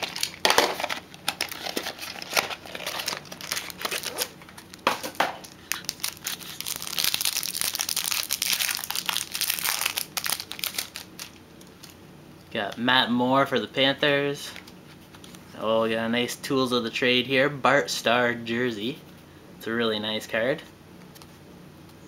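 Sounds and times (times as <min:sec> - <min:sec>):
wrapper tearing and crinkling: 0:00.0 - 0:12.0.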